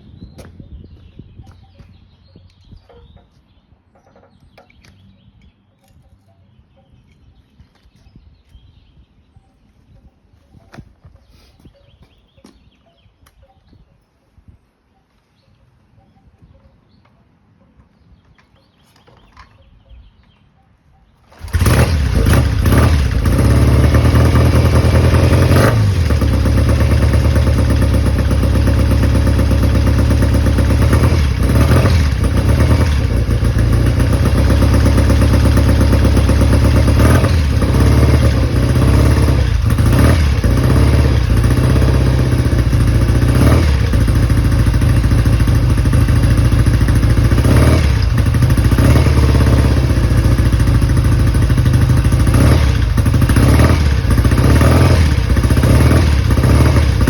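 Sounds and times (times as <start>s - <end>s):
motorcycle engine starting and running: 3.9s - 6.0s, 21.1s - 57.0s.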